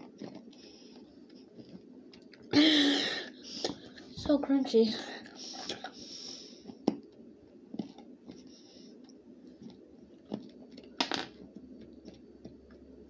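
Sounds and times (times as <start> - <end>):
person chewing crunchy snack: 0.0 - 1.8, 7.7 - 8.1.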